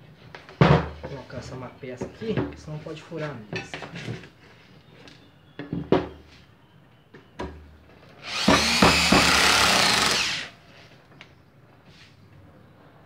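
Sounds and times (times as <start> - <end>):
drill driving screw into wood: 8.2 - 10.6.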